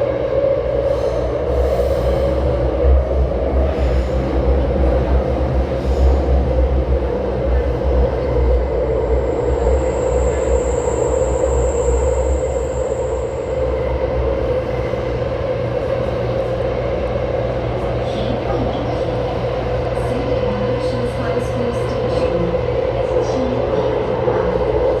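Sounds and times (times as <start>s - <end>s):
train car rumble: 0.0s - 25.0s
thin high whine: 8.8s - 14.6s.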